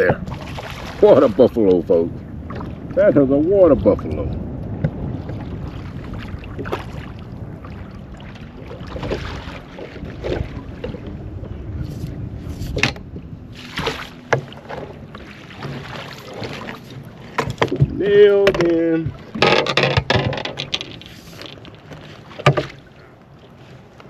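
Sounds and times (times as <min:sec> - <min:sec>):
wind and water rumble: 0:00.0 - 0:24.0
knocks and clicks of gear: 0:12.6 - 0:13.2, 0:17.3 - 0:22.8.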